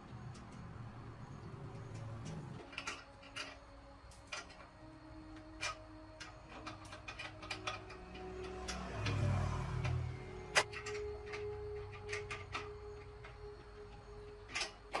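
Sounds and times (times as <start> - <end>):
faint background music: 0.0 - 15.0
metal parts and tools clicking: 1.4 - 15.0.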